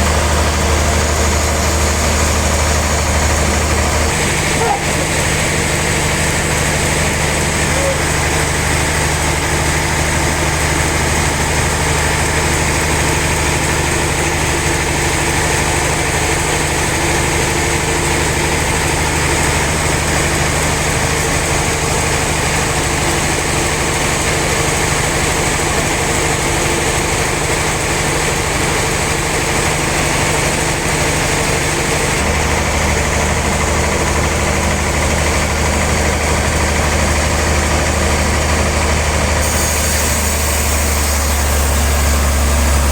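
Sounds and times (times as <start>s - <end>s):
sawmill machinery humming: 0.0s - 42.9s.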